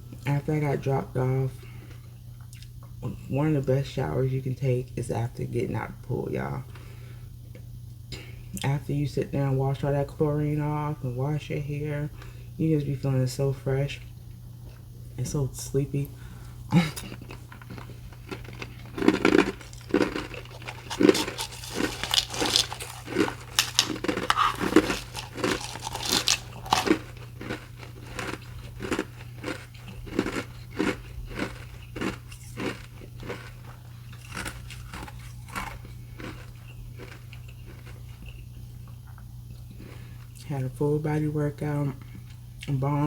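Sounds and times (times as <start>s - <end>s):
ice being chewed: 16.7s - 40.4s.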